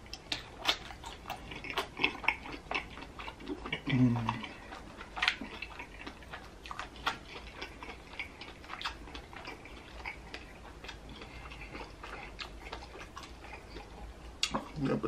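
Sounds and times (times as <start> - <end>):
chewing and lip-smacking: 0.0 - 15.0.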